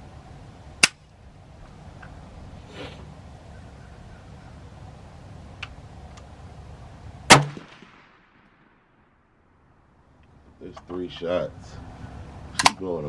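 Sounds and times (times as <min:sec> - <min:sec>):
rifle shot: 0:07.3 - 0:09.2.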